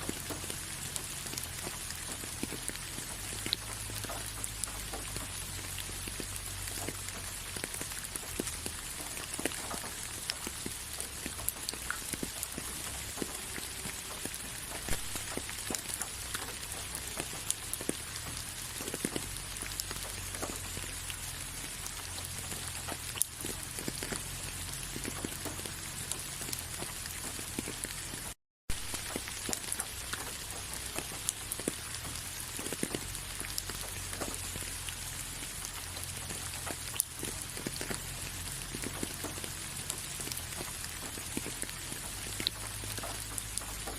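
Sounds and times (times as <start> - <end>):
raindrops ticking: 0.0 - 43.9
steady rain: 0.0 - 43.9.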